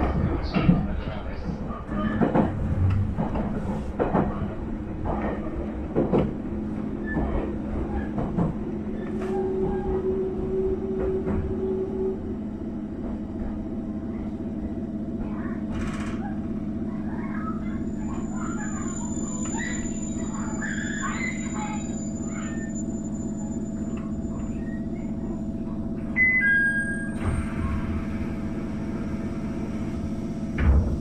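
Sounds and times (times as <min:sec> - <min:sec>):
train hum: 0:00.0 - 0:31.0
brake squeal: 0:17.3 - 0:25.4, 0:26.2 - 0:27.8.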